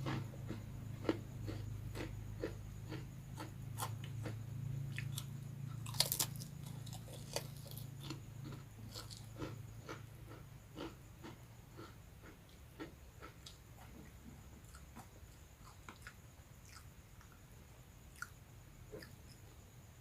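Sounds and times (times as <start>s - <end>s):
crunchy chewing: 0.0s - 19.6s.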